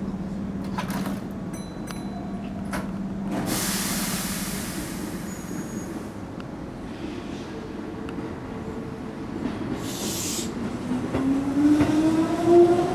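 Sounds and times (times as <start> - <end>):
air brakes hissing: 3.4 - 6.2, 9.8 - 10.6.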